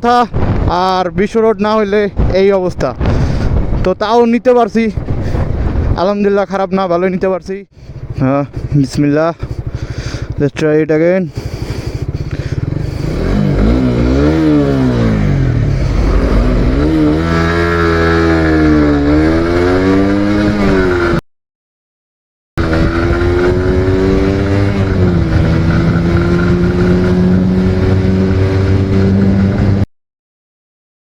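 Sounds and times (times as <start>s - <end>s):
motorcycle engine accelerating: 7.8s - 10.6s, 11.3s - 21.2s, 22.6s - 29.9s.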